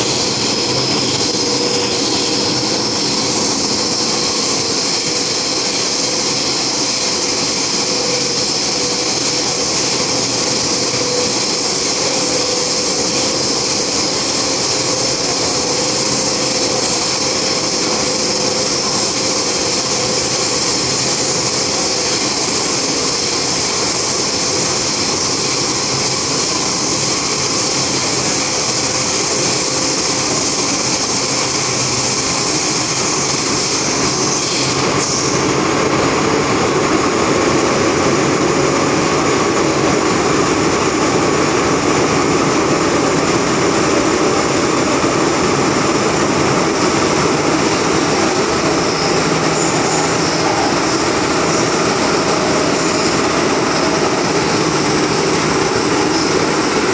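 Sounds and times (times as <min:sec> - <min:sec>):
train wheels rushing hiss: 0:00.0 - 0:56.9.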